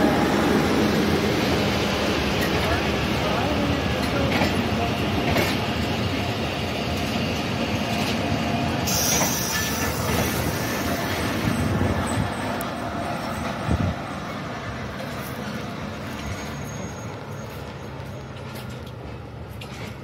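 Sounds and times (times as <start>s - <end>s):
train wheels rumbling on rails: 0.0s - 20.0s
high squeal: 8.9s - 12.6s, 16.1s - 18.3s.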